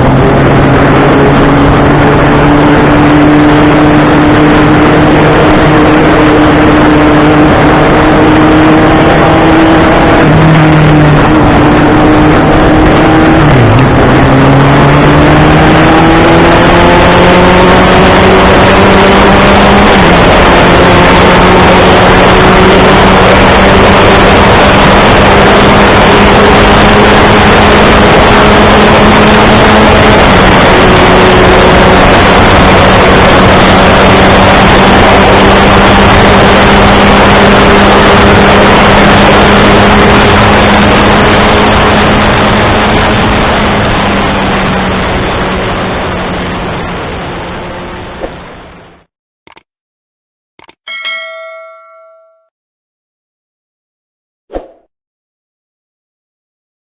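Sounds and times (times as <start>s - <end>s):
motorcycle engine revving: 0.0s - 46.7s
rushing noise: 38.2s - 49.1s.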